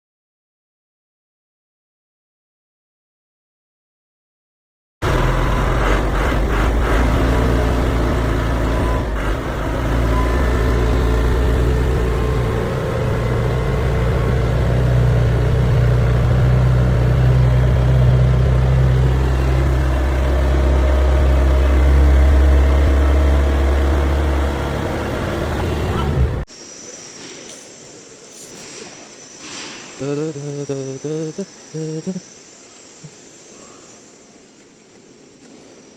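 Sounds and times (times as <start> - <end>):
tractor engine running: 5.0 - 26.5.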